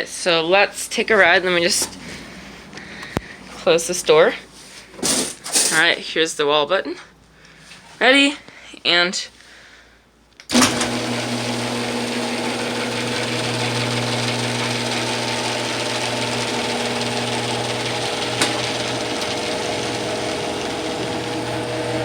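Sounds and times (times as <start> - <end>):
garage door opener motor humming: 10.5 - 22.0.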